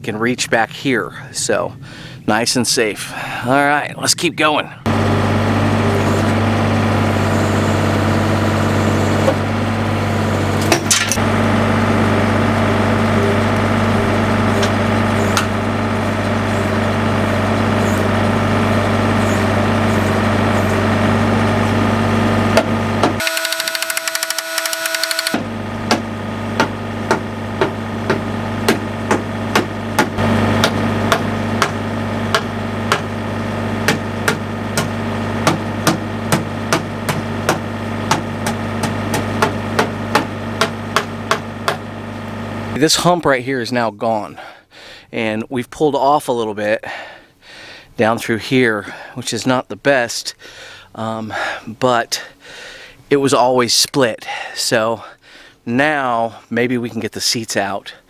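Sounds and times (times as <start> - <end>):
engine running: 4.8 - 42.9.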